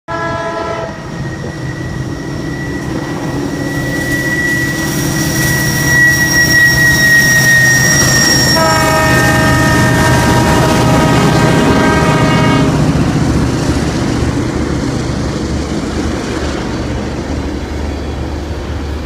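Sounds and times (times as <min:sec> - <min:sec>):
locomotive horn: 0:00.1 - 0:01.1, 0:08.6 - 0:13.0
locomotive rumble: 0:00.1 - 0:19.0
high-pitched tone: 0:00.9 - 0:11.8.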